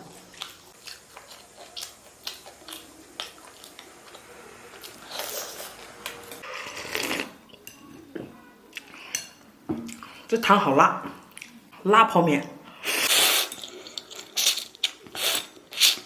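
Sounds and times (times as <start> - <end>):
person chewing and biting: 0.2 - 5.9.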